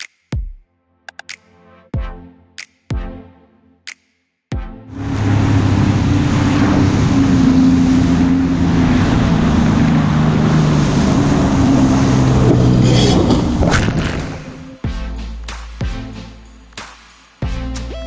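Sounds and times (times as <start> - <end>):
wind and water rushing: 4.9 - 14.8
jet ski engine running: 5.2 - 14.6.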